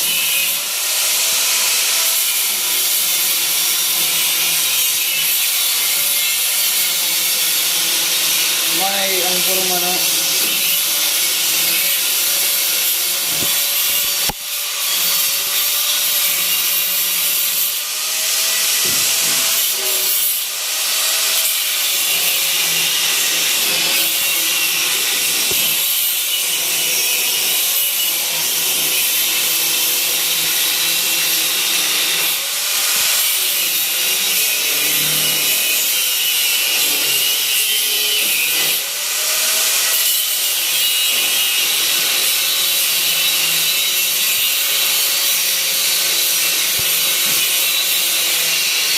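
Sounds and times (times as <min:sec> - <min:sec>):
power sander running: 0:08.5 - 0:14.8, 0:44.4 - 0:48.9.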